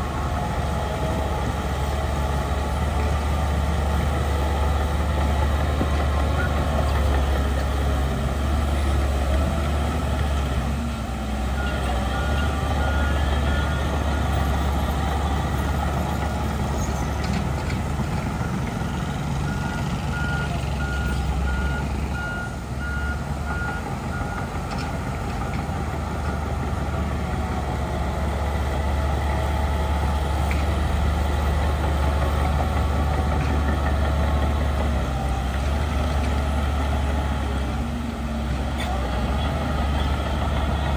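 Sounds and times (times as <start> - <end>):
heavy diesel machinery running: 0.0 - 40.9
reversing alarm beeping: 11.6 - 15.7, 18.4 - 24.5.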